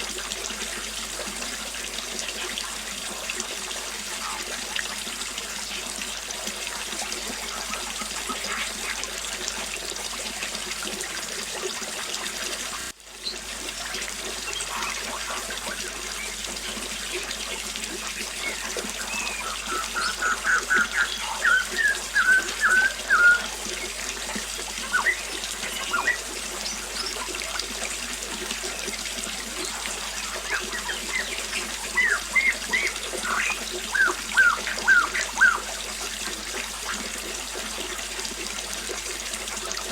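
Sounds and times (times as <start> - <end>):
small waterfall splashing: 0.0 - 39.9
birds chirping: 18.0 - 27.4, 29.6 - 35.7.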